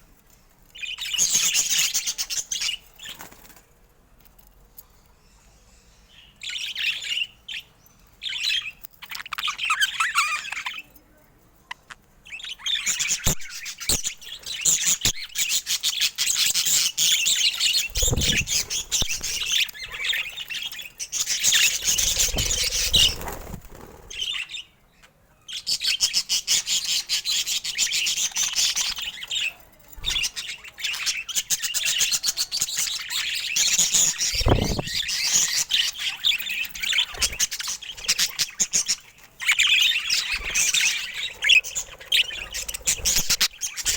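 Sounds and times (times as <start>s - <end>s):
budgerigars chirping and warbling: 12.3s - 43.9s.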